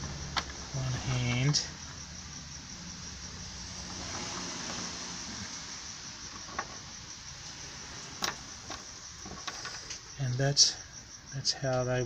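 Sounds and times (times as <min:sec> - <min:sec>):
steady hiss with low hum: 0:00.0 - 0:12.0.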